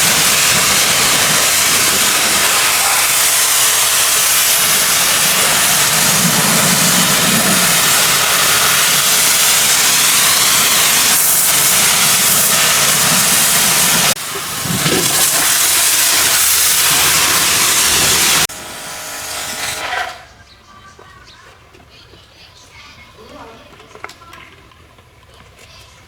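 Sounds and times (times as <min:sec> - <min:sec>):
pressure washer spraying: 0:00.0 - 0:20.1.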